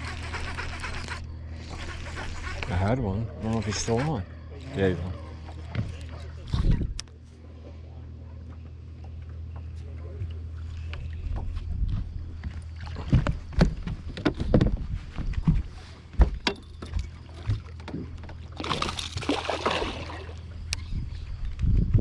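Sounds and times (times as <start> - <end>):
fishing rod and reel clicks: 0.0 - 7.1
steady low hum: 0.0 - 22.0.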